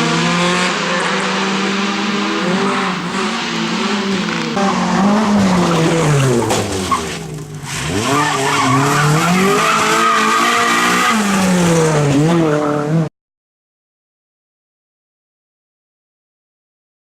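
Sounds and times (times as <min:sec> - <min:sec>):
rally car engine revving: 0:00.0 - 0:13.1.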